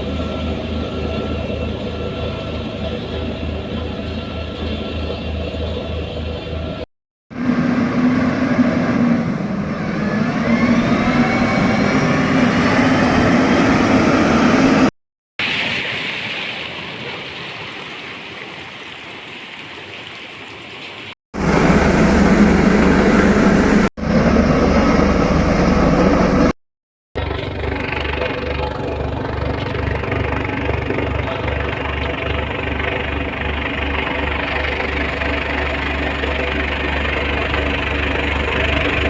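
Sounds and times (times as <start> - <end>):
heavy machinery engines running: 0.0 - 14.9, 21.4 - 26.6, 27.2 - 39.0
pulsing low rumble: 0.0 - 14.9, 27.2 - 39.0
engine whines: 0.0 - 15.0, 21.4 - 26.6, 27.2 - 39.0.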